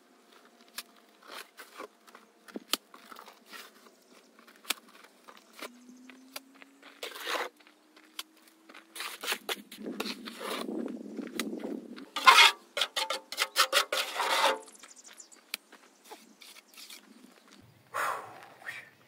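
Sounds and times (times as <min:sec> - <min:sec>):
rough scraping and rubbing: 0:06.9 - 0:07.6, 0:08.9 - 0:10.8, 0:12.0 - 0:14.9, 0:16.1 - 0:17.1.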